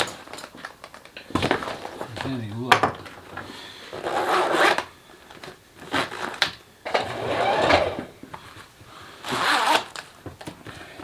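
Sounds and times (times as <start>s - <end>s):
zipper being pulled: 4.0s - 4.8s, 5.9s - 8.1s, 9.2s - 10.0s.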